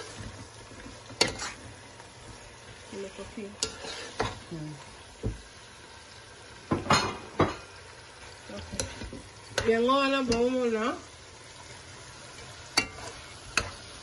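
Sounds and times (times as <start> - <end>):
food sizzling in hot oil: 0.0 - 14.0
metal spoon scraping a pot: 0.7 - 1.8, 3.6 - 4.4, 12.8 - 13.8.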